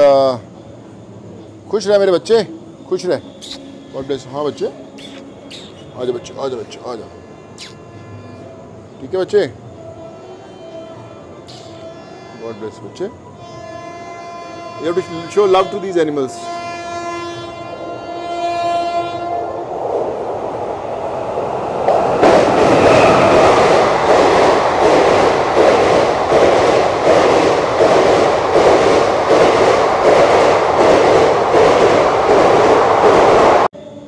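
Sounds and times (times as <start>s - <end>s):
train passing: 0.0s - 34.0s
train horn: 5.8s - 19.7s.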